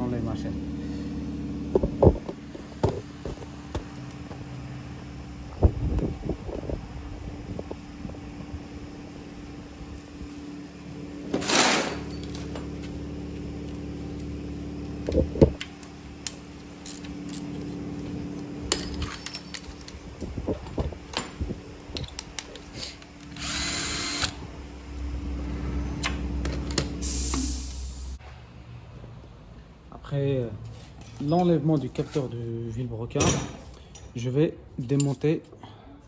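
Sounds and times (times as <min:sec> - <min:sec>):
steady low hum: 0:00.0 - 0:28.3
power drill whirring: 0:23.2 - 0:24.5.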